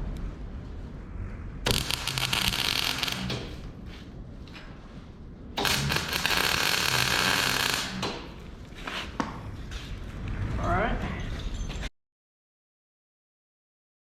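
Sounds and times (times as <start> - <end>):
arc welding crackle: 1.6 - 3.8, 5.6 - 8.5.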